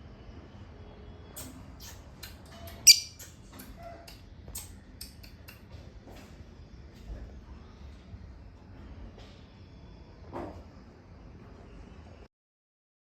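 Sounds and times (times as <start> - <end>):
pet birds chirping and squeaking: 1.8 - 5.4
bird squawk: 2.9 - 3.3.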